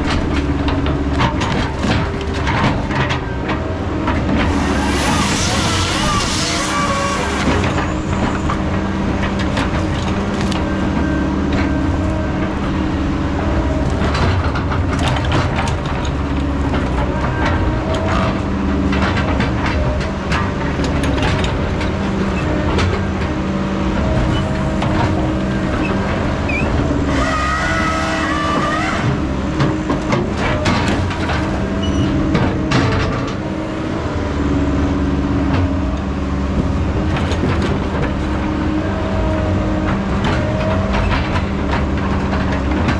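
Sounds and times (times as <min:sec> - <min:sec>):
metal clanks and knocks: 0:00.0 - 0:05.5, 0:39.8 - 0:42.9
diesel engine of heavy machinery: 0:00.0 - 0:42.9
high squeal: 0:04.5 - 0:08.5, 0:26.5 - 0:29.2.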